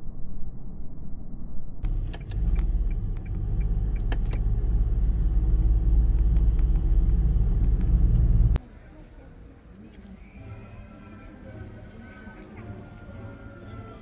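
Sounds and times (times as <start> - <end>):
sharp clicks and rattles: 1.8 - 8.6
vehicle engine rumble: 1.8 - 9.2.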